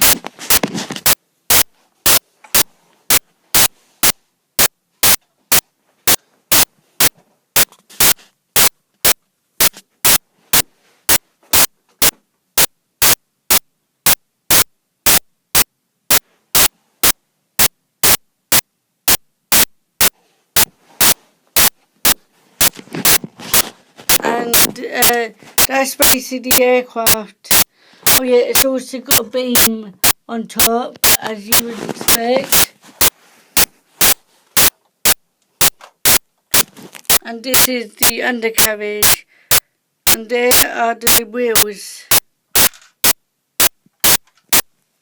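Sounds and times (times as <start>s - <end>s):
short bursts of static: 0.0s - 44.8s.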